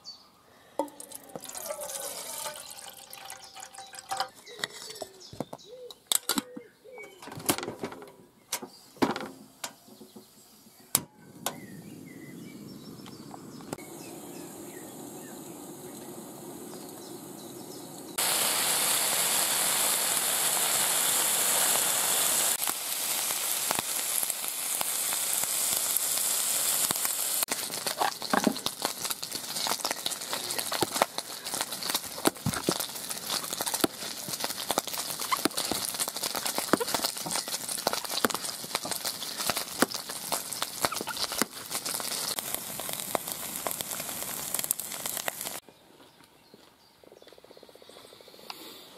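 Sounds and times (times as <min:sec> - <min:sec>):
food sizzling while frying: 0:00.8 - 0:05.3, 0:13.8 - 0:45.6.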